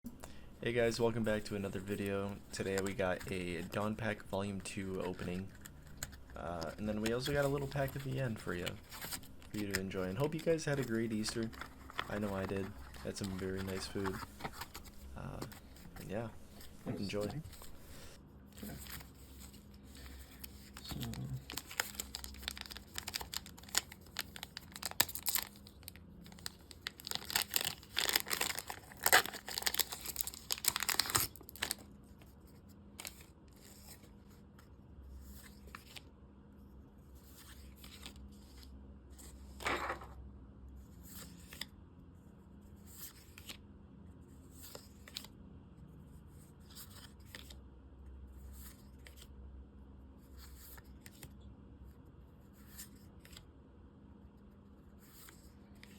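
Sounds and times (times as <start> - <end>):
cards rustling and clicking: 0.2 - 36.1, 37.2 - 40.1, 42.8 - 43.6, 44.5 - 45.4, 46.6 - 47.6, 50.4 - 51.4, 52.6 - 53.4, 55.0 - 55.9
plastic wrapper tearing and crinkling: 20.8 - 31.8.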